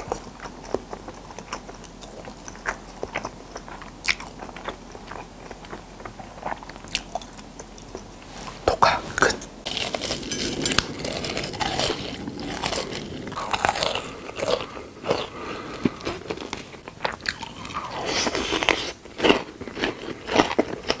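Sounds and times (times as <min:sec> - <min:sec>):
person crunching food: 0:00.0 - 0:21.0.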